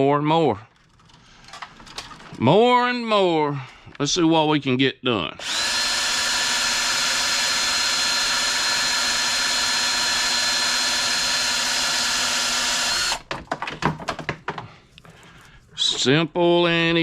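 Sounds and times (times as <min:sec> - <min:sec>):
battery drill whining: 0:05.4 - 0:13.2
sharp clicks and knocks: 0:12.9 - 0:14.7.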